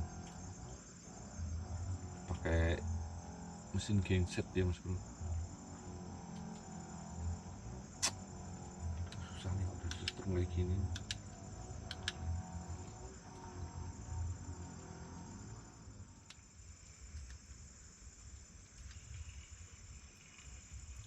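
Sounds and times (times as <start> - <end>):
crickets trilling: 0.0 - 21.0
faint clicks: 9.0 - 10.3, 10.9 - 12.2, 16.2 - 17.6, 18.3 - 19.5.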